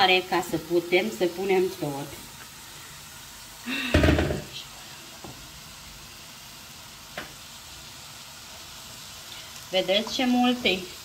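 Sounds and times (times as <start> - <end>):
cabbage sizzling in hot oil: 0.0 - 11.0
utensil clatter with dull thud: 3.9 - 4.5.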